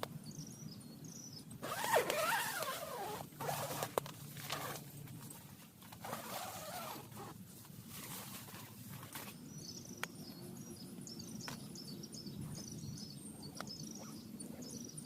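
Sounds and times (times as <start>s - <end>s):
rustling and squeaky scraping: 1.6s - 9.4s.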